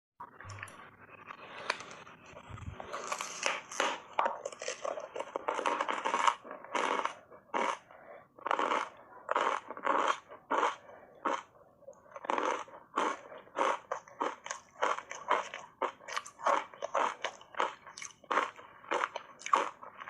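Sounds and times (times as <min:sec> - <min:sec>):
ice being bitten and chewed: 0:02.8 - 0:20.0.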